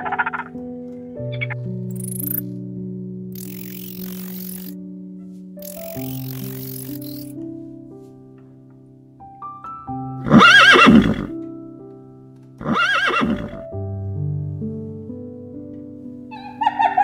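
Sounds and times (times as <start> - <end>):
piano music: 0.0 - 17.0
horse whinnying: 10.3 - 11.3, 12.6 - 13.6.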